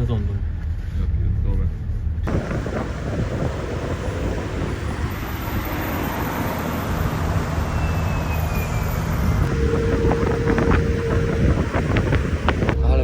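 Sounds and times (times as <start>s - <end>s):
low engine rumble: 0.0s - 13.0s
road traffic noise: 2.3s - 12.8s.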